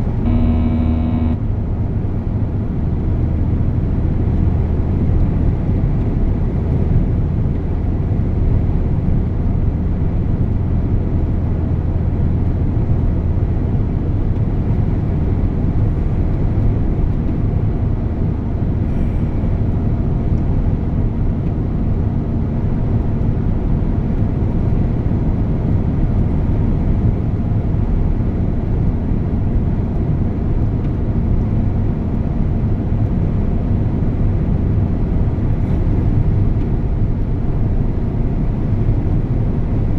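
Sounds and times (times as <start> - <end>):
faint steady hum: 0.0 - 1.4
truck engine and road noise: 0.0 - 39.9.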